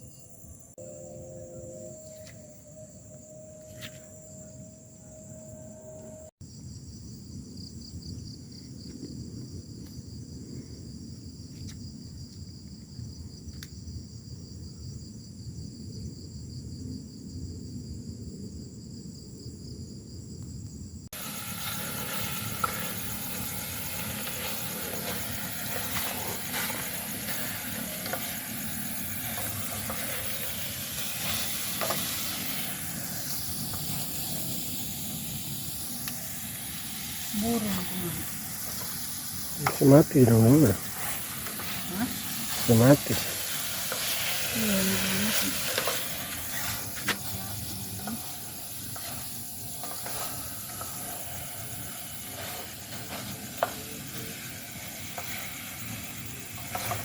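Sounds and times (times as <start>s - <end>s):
insect chorus: 0.0s - 57.0s
even hiss: 21.1s - 57.0s.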